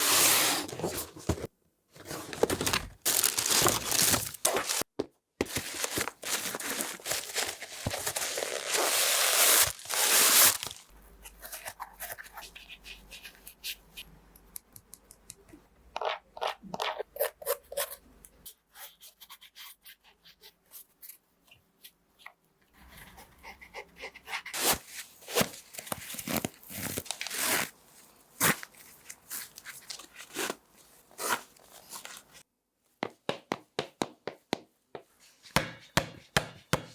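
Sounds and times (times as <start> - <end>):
packaging crinkling and tearing: 2.1 - 4.9, 5.5 - 10.9, 24.6 - 27.7.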